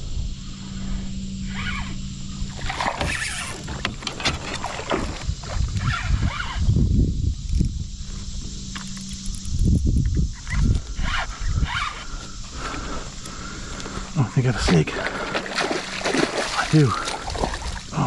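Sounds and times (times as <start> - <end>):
steady low hum: 0.0 - 18.0
water sloshing around kayak: 2.5 - 5.8, 11.7 - 18.0.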